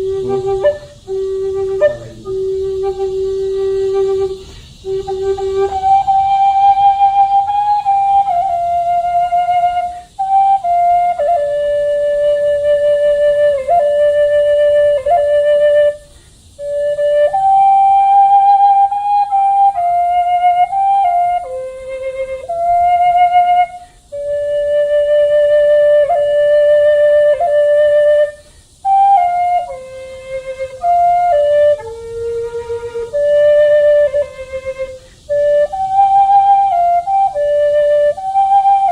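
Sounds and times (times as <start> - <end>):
solo flute melody: 0.0 - 38.9.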